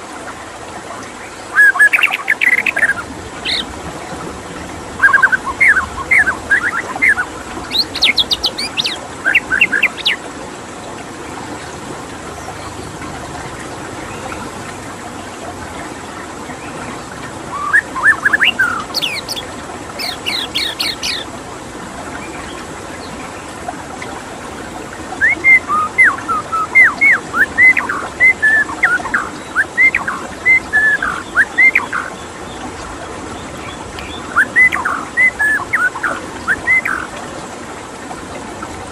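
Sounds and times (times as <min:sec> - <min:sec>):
running water: 0:00.0 - 0:38.9
bird singing whistled phrases: 0:01.5 - 0:03.6, 0:17.5 - 0:19.4, 0:20.0 - 0:21.2, 0:25.1 - 0:32.1, 0:33.6 - 0:37.1.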